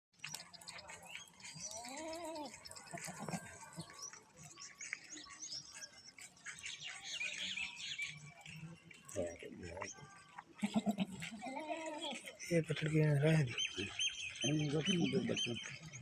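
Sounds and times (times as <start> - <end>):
goat bleating: 10.6 - 12.2.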